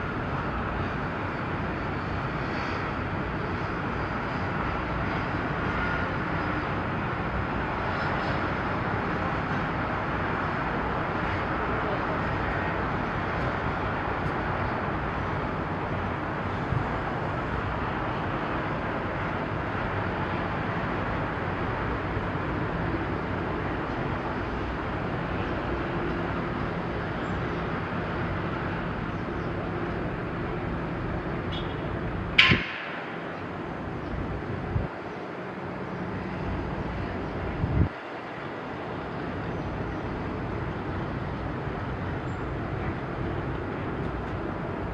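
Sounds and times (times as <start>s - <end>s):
rushing outdoor noise: 0.0s - 44.9s
sharp clack: 32.4s - 33.3s.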